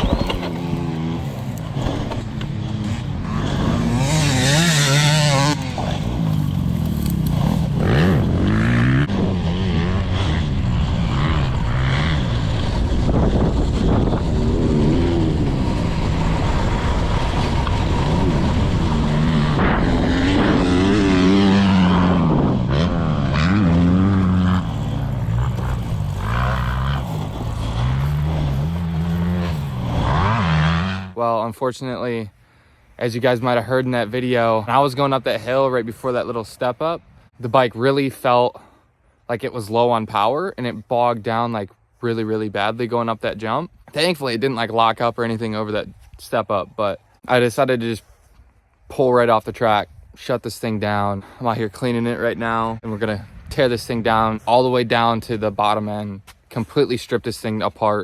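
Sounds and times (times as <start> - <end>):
motorcycle engine revving: 0.0 - 31.2.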